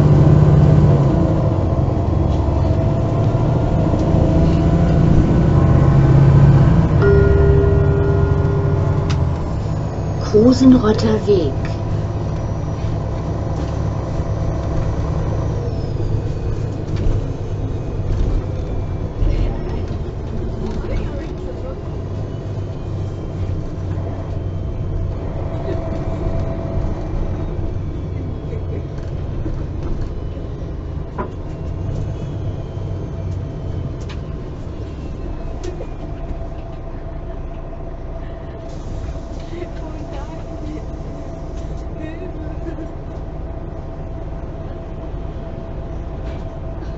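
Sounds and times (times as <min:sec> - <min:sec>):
bus engine drone: 0:00.0 - 0:46.9
faint steady whine: 0:07.0 - 0:14.1
interior rattles and clicks: 0:16.0 - 0:32.5.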